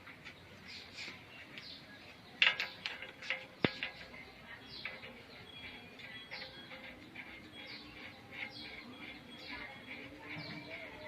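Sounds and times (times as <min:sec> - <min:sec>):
small birds chirping: 0:00.0 - 0:11.0
sharp clicks or knocks: 0:02.4 - 0:04.1.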